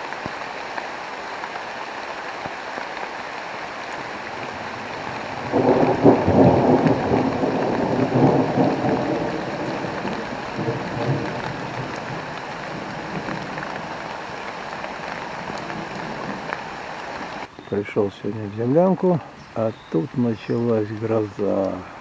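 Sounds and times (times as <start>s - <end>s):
heavy rain falling: 0.0s - 22.0s
thunder rumbling: 3.6s - 17.5s.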